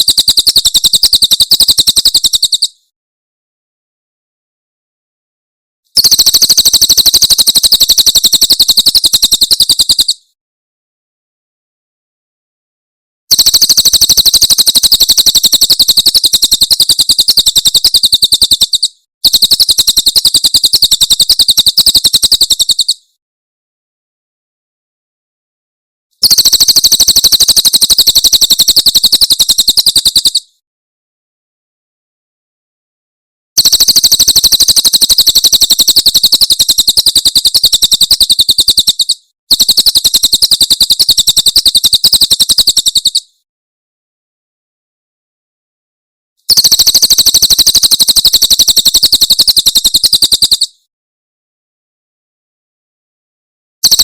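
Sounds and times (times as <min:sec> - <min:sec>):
bird rapid high chirps: 0:00.0 - 0:02.8, 0:06.0 - 0:10.3, 0:13.3 - 0:23.1, 0:26.2 - 0:30.5, 0:33.6 - 0:43.4, 0:46.5 - 0:50.8.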